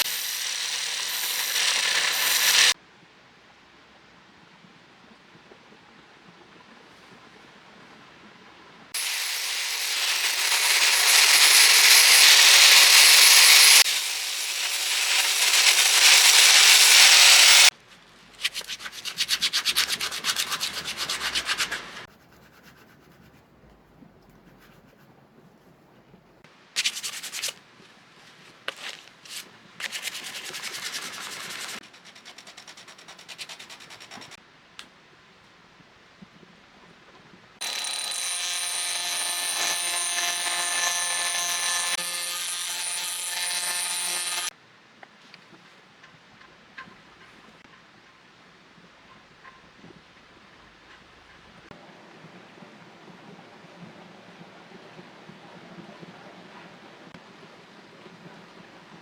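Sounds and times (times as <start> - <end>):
sanding a steel blade: 0.0 - 2.8, 9.0 - 17.7, 18.4 - 23.4, 28.8 - 34.4, 37.6 - 44.5
quick scrubbing strokes: 18.3 - 25.6, 28.7 - 34.4.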